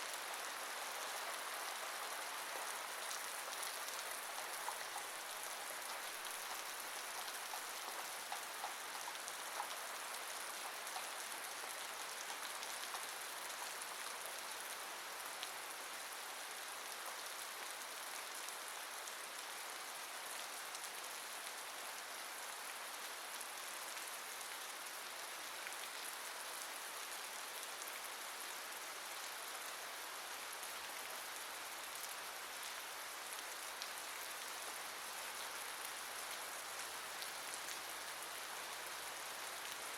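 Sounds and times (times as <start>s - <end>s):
steady rainfall hiss: 0.0s - 39.9s
raindrop ticks: 3.0s - 13.8s.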